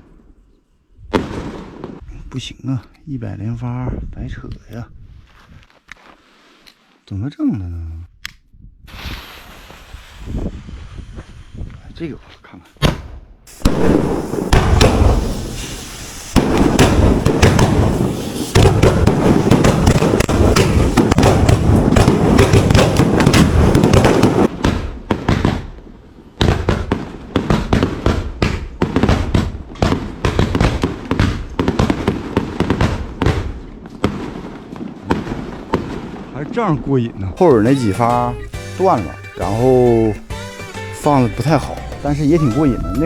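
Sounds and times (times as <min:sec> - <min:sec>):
firecrackers banging: 0:12.9 - 0:25.7, 0:37.4 - 0:43.0.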